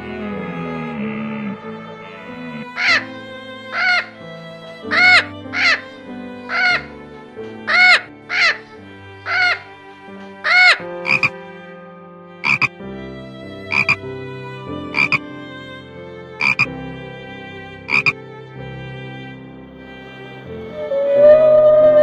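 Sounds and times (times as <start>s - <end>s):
animal two-note call: 11.1s - 11.3s, 12.4s - 12.7s, 13.7s - 14.0s, 15.0s - 15.2s, 16.4s - 16.7s, 17.9s - 18.1s, 20.7s - 22.0s.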